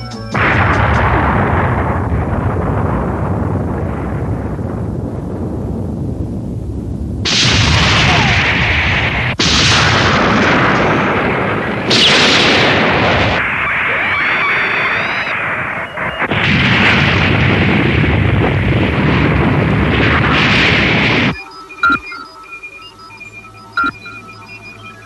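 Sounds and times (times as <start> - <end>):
cartoon explosions rumbling: 0.3 - 25.0
warbling tone: 19.8 - 25.0.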